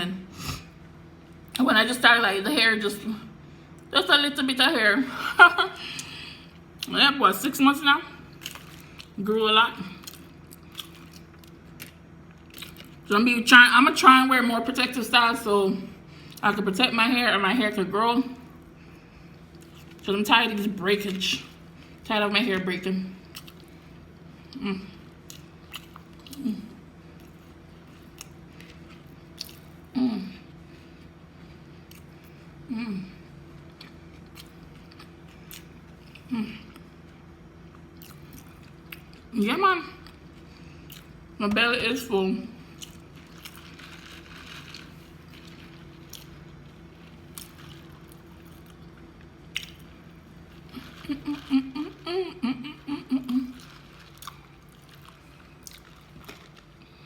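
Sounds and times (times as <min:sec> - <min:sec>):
short hummed vocal sounds: 0:22.2 - 0:25.5, 0:26.2 - 0:27.1, 0:29.8 - 0:30.9, 0:32.3 - 0:34.0, 0:35.4 - 0:37.2, 0:49.9 - 0:54.1
low hum: 0:40.0 - 0:57.0
chewing mouth sounds: 0:42.7 - 0:52.0, 0:53.3 - 0:57.0.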